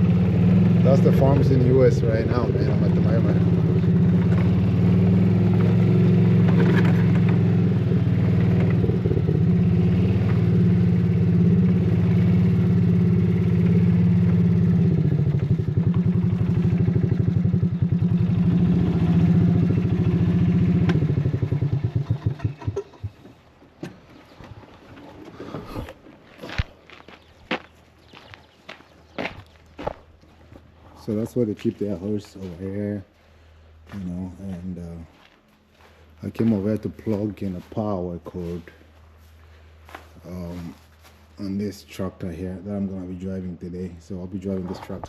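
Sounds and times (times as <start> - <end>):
golf cart engine running: 0.0 - 25.8.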